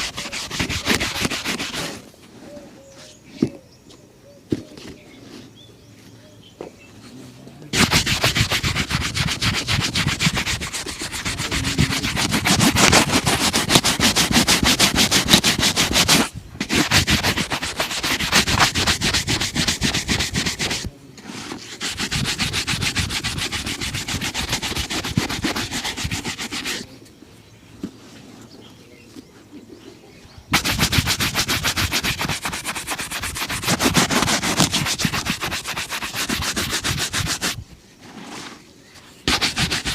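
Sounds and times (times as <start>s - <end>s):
leather shoe being buffed: 0.0s - 2.0s, 7.8s - 26.9s, 30.5s - 37.6s, 39.3s - 39.9s.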